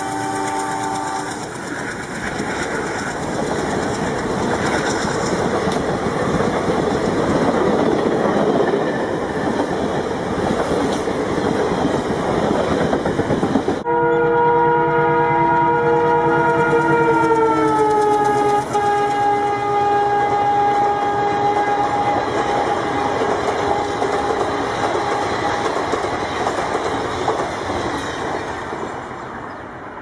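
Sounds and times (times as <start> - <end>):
loud multi-note horn: 0.0 - 1.5, 13.8 - 23.2
train horn: 0.0 - 1.5, 13.8 - 25.3
train rumbling on rails: 0.0 - 30.0.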